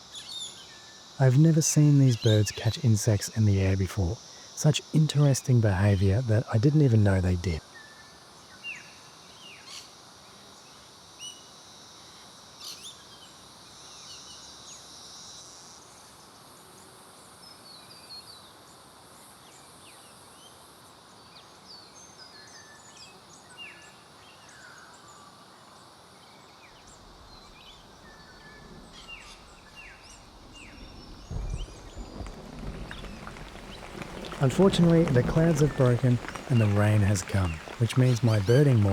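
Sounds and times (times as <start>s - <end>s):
insect drone: 0.0s - 38.9s
small birds chirping: 26.6s - 38.9s.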